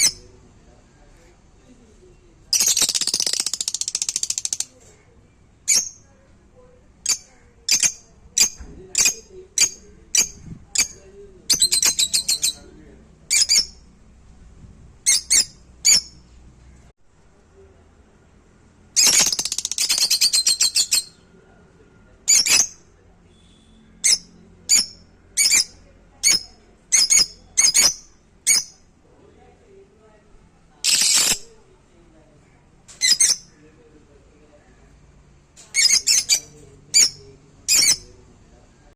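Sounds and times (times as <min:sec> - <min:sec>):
parrot squawking: 0:35.7 - 0:38.1.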